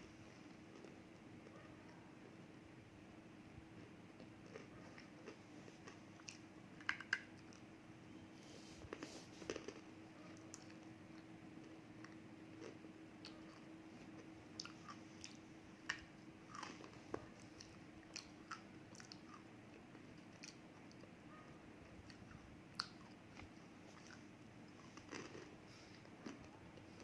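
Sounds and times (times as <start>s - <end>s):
faint steady hum: 0.0s - 27.0s
biting and chewing crunches: 24.8s - 26.5s.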